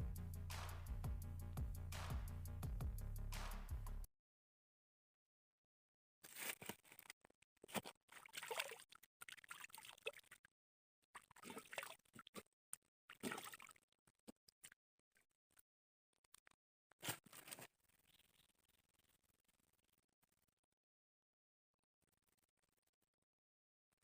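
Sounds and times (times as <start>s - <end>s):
water splashing and trickling: 7.6s - 10.5s, 11.2s - 12.5s, 13.1s - 13.9s.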